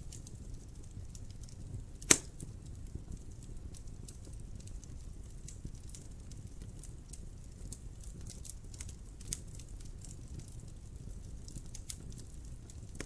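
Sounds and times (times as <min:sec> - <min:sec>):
fire snaps and pops: 0:00.0 - 0:13.0
low rumble of flame: 0:00.0 - 0:13.0
wood fire crackling: 0:00.0 - 0:13.0.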